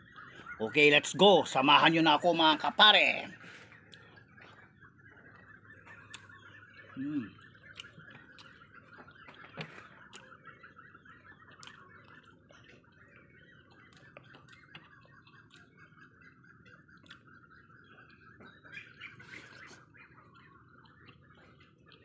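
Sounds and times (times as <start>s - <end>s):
birds chirping: 0.0s - 22.0s
soft eating clicks: 7.6s - 8.6s, 11.5s - 12.8s, 16.9s - 17.3s.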